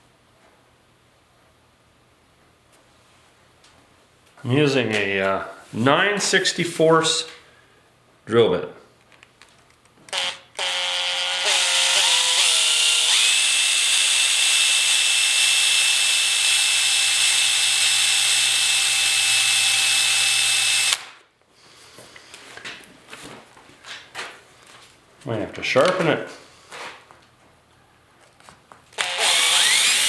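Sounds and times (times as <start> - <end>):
electric drill whining: 10.1 - 21.1, 29.0 - 30.0.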